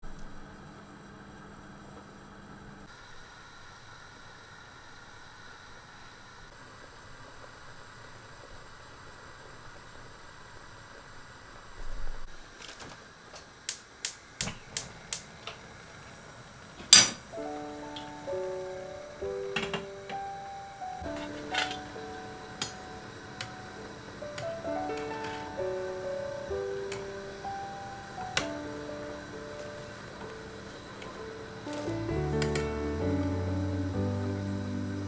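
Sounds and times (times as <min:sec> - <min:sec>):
sharp clicks: 0:13.7 - 0:15.6.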